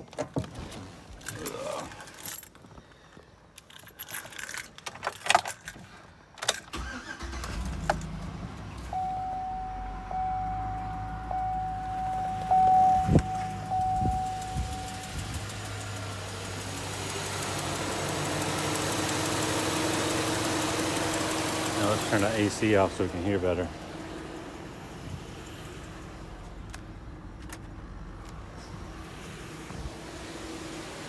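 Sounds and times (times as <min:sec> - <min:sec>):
keys jangling: 0:01.2 - 0:02.8, 0:03.6 - 0:06.7
car engine starting and idling: 0:06.4 - 0:31.0
steady high tone: 0:08.9 - 0:15.3.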